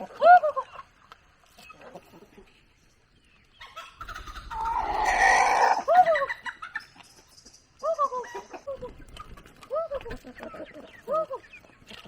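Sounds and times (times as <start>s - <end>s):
chickens clucking: 0.0s - 12.0s
chicken harsh drawn-out call: 4.2s - 6.1s.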